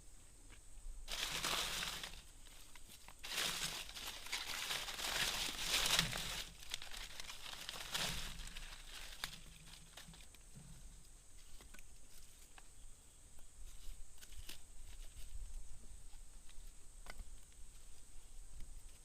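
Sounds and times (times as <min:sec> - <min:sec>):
crinkling rustling handling noise: 0:01.1 - 0:10.5.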